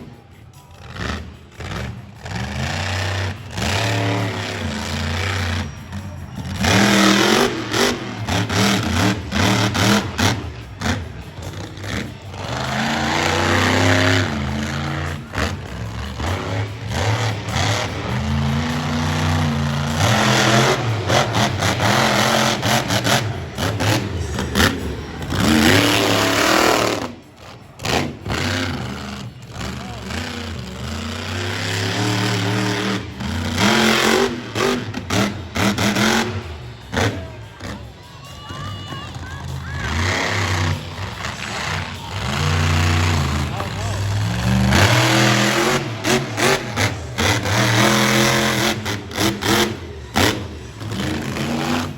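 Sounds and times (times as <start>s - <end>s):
truck engines revving hard: 0.0s - 51.9s.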